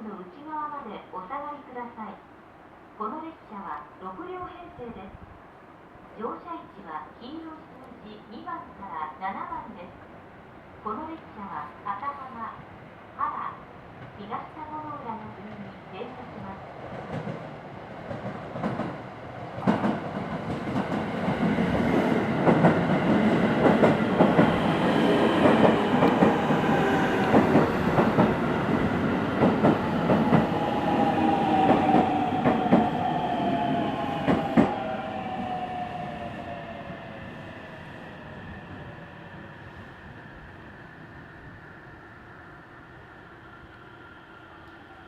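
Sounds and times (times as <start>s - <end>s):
train whine falling in pitch: 24.3s - 39.1s.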